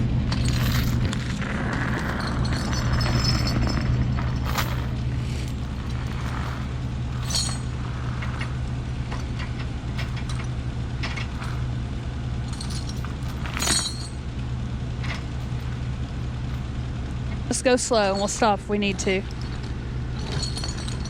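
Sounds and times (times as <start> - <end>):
car engine running: 0.0 - 21.0
light clinks and clicks: 19.2 - 21.0.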